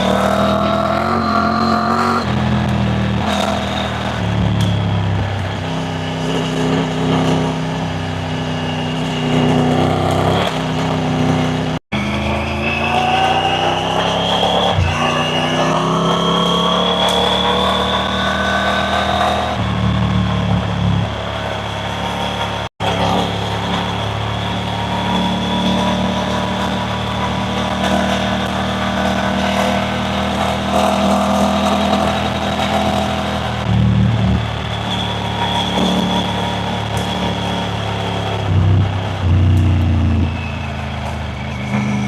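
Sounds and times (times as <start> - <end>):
motorcycle engine accelerating: 0.0 - 42.0.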